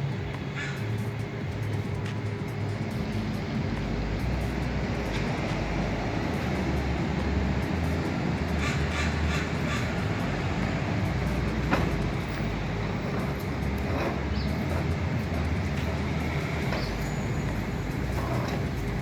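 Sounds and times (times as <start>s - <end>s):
low engine rumble: 0.0s - 19.0s.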